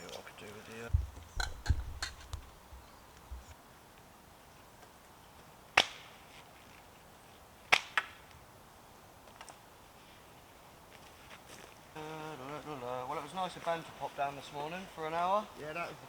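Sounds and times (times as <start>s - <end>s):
sharp knocks: 0.9s - 2.6s.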